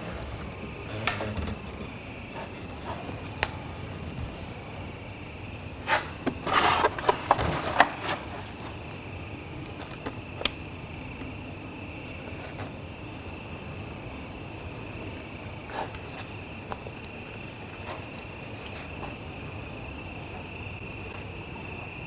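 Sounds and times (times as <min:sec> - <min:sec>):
insect chirring: 0:00.0 - 0:06.9.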